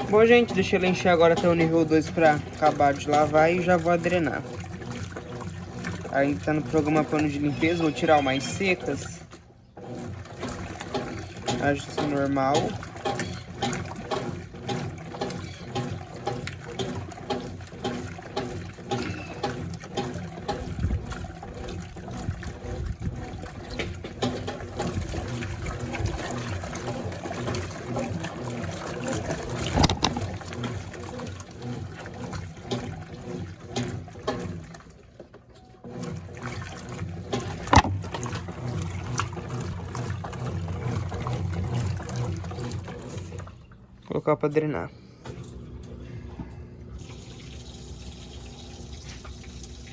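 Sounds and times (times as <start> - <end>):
motor hum: 0.0 - 49.9
water sloshing in washing machine: 0.0 - 49.9
sharp knocks: 37.4 - 38.0.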